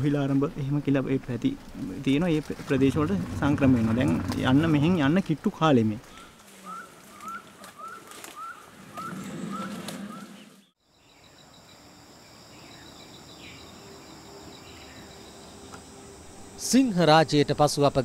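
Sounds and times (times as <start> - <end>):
insects pulsing drone: 0.1 - 7.5, 8.5 - 18.0
bird chirping: 6.0 - 16.6.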